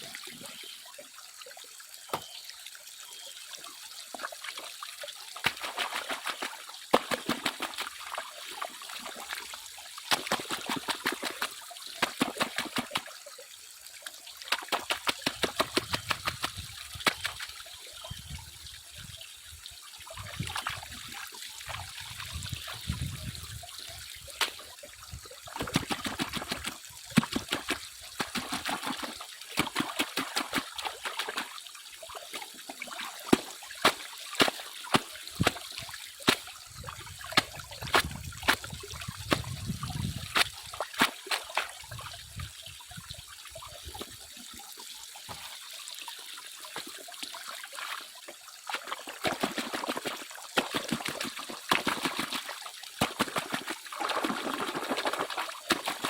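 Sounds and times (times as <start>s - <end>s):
water sloshing and trickling: 0.0s - 56.0s
gravel rattling in water: 10.1s - 13.0s, 14.5s - 17.5s, 25.6s - 31.5s, 33.2s - 41.8s, 49.0s - 56.0s.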